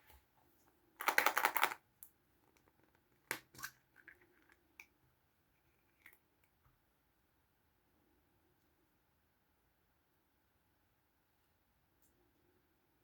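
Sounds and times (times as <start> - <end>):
packaging crinkling: 1.0 - 1.8
plastic toy clicks: 1.0 - 1.8.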